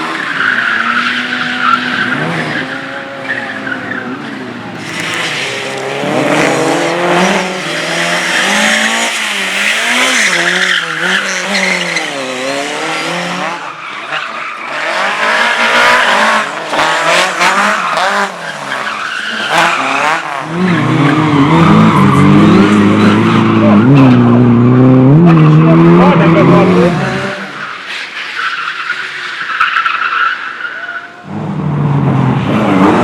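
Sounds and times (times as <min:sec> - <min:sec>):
race car engine revving: 0:00.0 - 0:27.9, 0:31.2 - 0:33.0.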